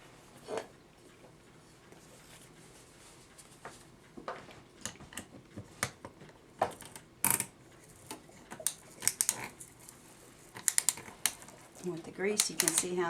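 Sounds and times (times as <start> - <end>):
clock ratchet clicking while wound: 7.2 - 11.6, 12.2 - 13.0.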